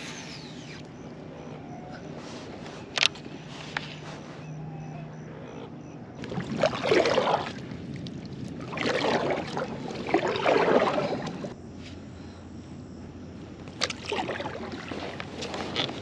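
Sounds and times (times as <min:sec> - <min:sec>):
kayak paddle strokes in water: 0:06.2 - 0:11.6.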